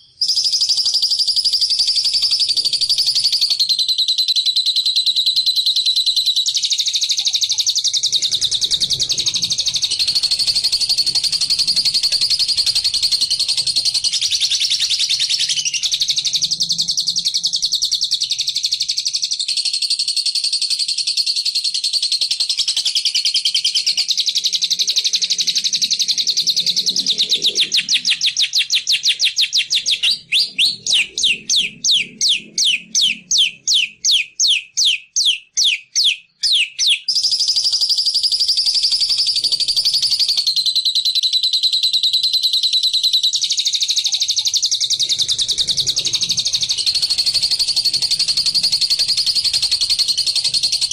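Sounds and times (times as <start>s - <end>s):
songbird trilling chatter: 22.4s - 37.7s.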